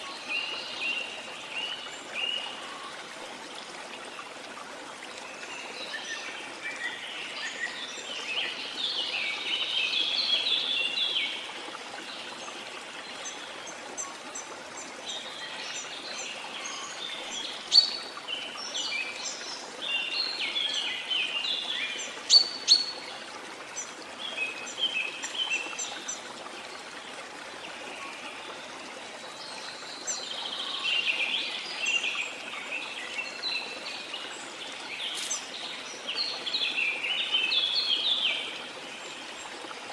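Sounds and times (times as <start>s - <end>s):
small birds chirping: 18.7s - 23.0s, 32.8s - 38.5s.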